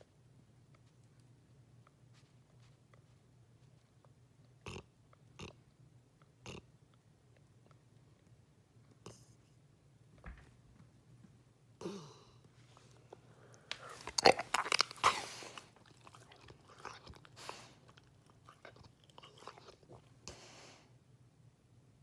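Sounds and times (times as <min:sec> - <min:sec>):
dog snorting: 0:13.8 - 0:20.7.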